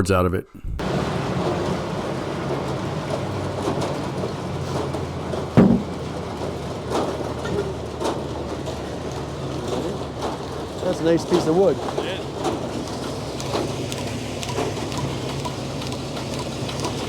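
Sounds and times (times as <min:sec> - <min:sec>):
log carriage running on track: 0:00.8 - 0:17.0
sawmill running: 0:00.8 - 0:17.0
heavy knock: 0:05.6 - 0:06.0.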